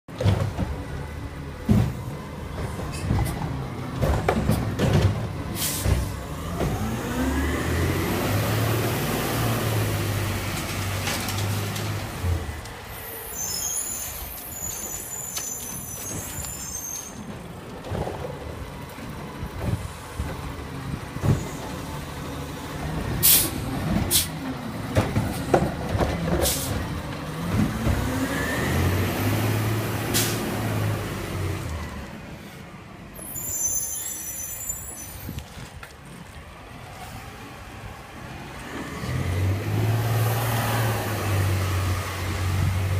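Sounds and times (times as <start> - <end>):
air brakes hissing: 5.6 - 6.2, 12.9 - 17.3, 23.2 - 24.4, 30.1 - 30.5, 33.2 - 35.4
diesel engine revving with whine: 6.3 - 10.6, 27.3 - 32.1.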